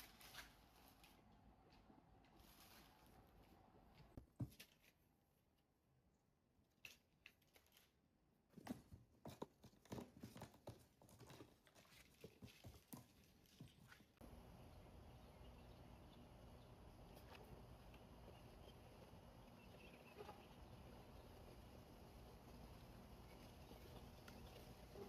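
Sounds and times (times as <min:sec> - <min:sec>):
rustling: 0:00.0 - 0:05.0, 0:06.8 - 0:14.4.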